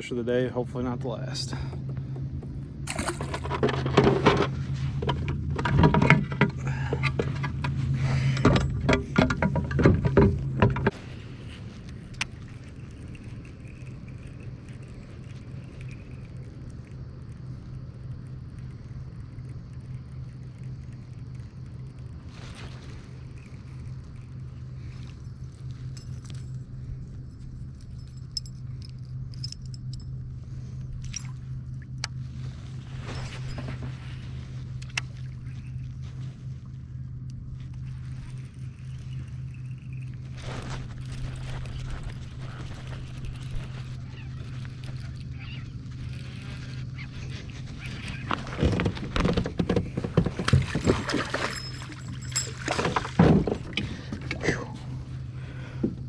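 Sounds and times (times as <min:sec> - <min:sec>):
kayak drive humming: 0:00.0 - 0:56.0
gear clicking and clinking: 0:00.7 - 0:32.2, 0:37.2 - 0:55.2
knocks and clatter on kayak: 0:01.0 - 0:11.5, 0:40.4 - 0:54.9.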